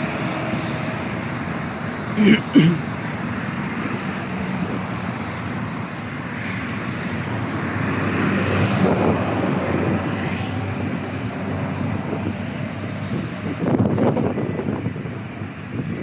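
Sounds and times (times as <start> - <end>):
airliner engine passing: 0.0 - 16.0
wind on microphone: 6.4 - 16.0.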